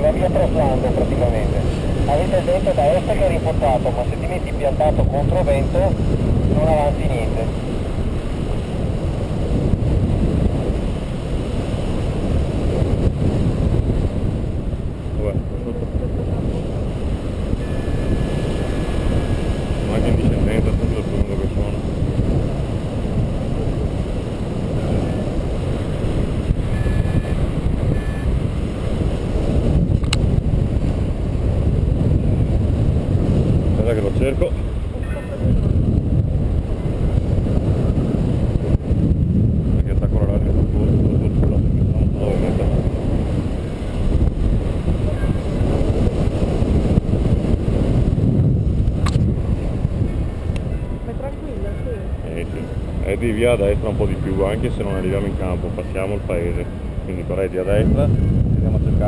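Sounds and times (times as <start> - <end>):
wind buffeting microphone: 0.0 - 59.0
faint electronic beeps: 17.5 - 19.7, 26.7 - 28.4
sharp click: 49.0 - 49.2.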